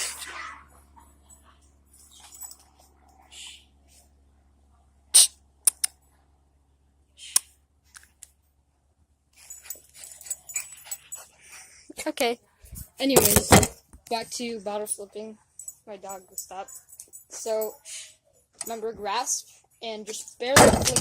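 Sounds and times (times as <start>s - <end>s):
sharp clicks: 5.2s - 6.0s.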